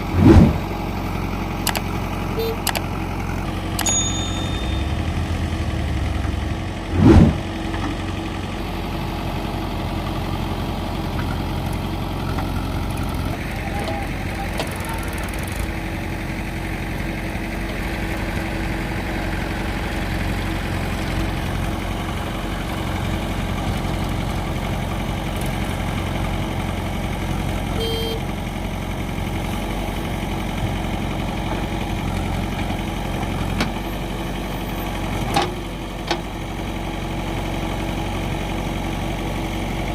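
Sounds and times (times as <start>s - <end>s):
diesel engine running: 0.0s - 39.9s
loud clunk: 0.1s - 0.7s
short beep: 2.4s - 2.8s, 3.8s - 5.4s, 27.8s - 28.2s.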